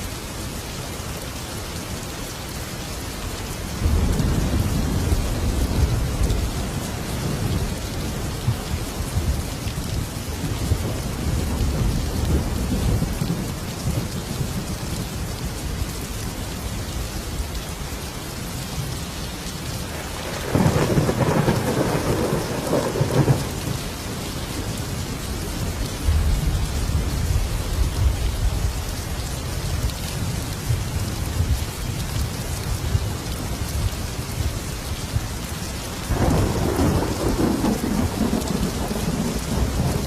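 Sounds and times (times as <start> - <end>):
steady rain: 0.0 - 40.0
thunder rumbling: 3.8 - 15.8, 19.8 - 29.0, 36.1 - 40.0.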